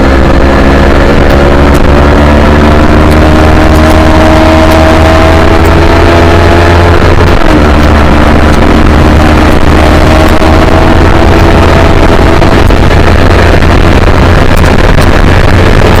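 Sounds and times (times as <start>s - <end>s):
motorcycle engine running hard: 0.0s - 16.0s
wind rumble on microphone: 0.0s - 16.0s.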